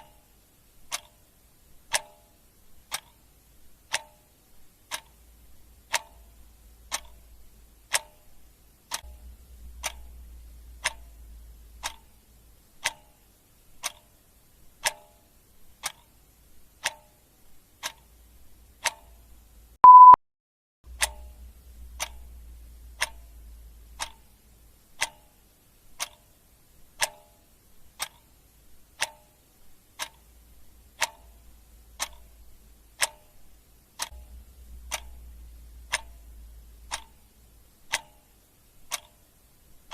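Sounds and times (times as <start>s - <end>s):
clock ticking: 0.0s - 20.2s, 20.9s - 39.9s
short loud beep: 19.8s - 20.2s.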